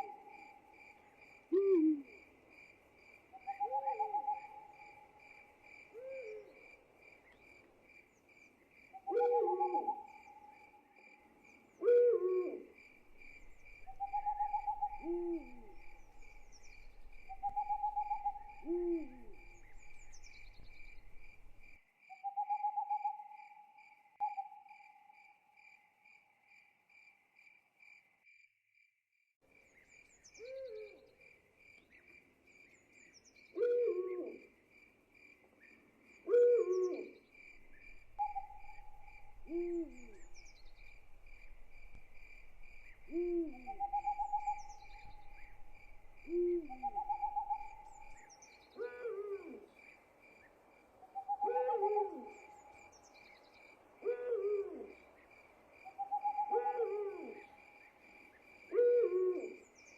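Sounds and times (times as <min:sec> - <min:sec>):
crickets chirping: 0:00.0 - 0:28.9, 0:29.5 - 0:59.9
owl hooting: 0:01.5 - 0:02.2, 0:03.4 - 0:05.2, 0:06.0 - 0:06.5, 0:09.0 - 0:10.6, 0:11.8 - 0:21.6, 0:33.6 - 0:34.4, 0:36.3 - 0:49.7, 0:51.1 - 0:52.8, 0:54.0 - 0:55.0, 0:55.9 - 0:57.6, 0:58.7 - 0:59.6.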